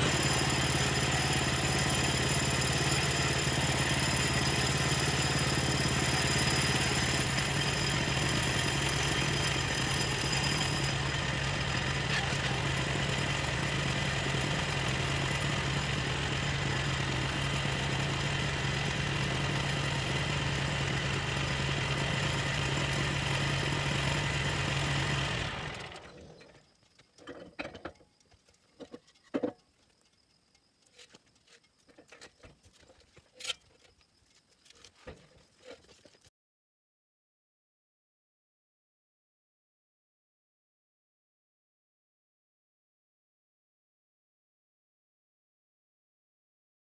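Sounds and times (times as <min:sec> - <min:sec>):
sawmill engine running: 0:00.0 - 0:26.7.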